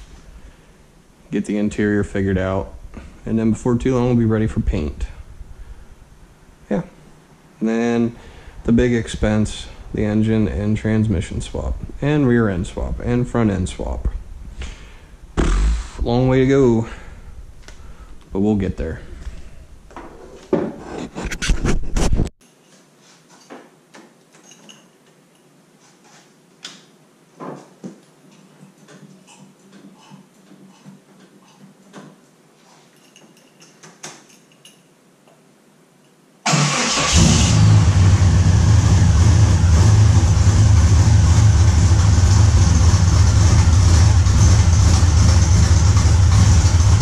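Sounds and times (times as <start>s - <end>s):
car engine idling rumble: 37.2s - 47.0s.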